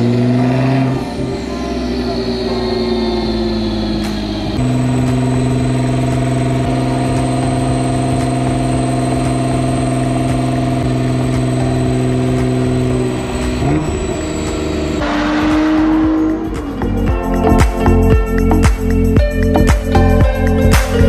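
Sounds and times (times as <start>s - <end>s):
car engine revving on a dyno: 0.0s - 16.8s
music with a beat: 3.9s - 13.8s, 14.5s - 21.0s.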